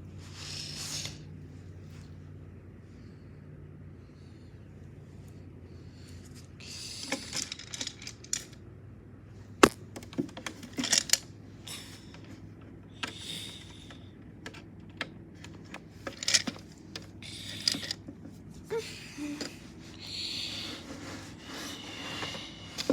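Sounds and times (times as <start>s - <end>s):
metal chains clinking on plastic: 7.1s - 8.6s.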